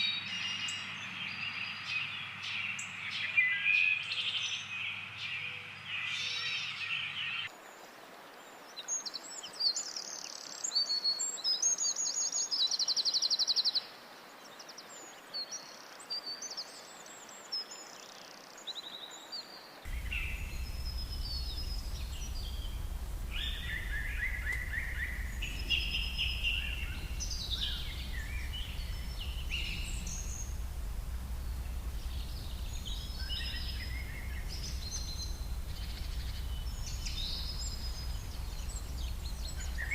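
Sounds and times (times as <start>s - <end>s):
faint hiss: 19.8s - 39.9s
birds chirping and singing: 19.9s - 39.9s
steady low rumble: 19.9s - 39.9s.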